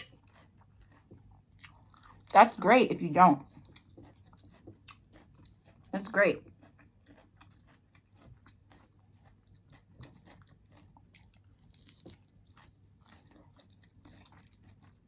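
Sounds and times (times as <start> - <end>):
chewing and crunching food: 0.0 - 15.0.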